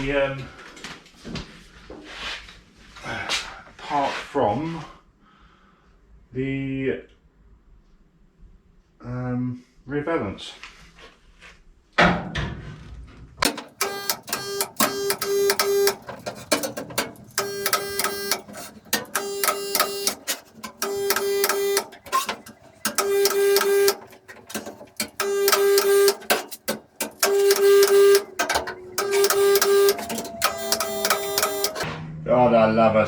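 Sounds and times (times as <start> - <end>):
spot welder buzzing hum: 13.4 - 31.9.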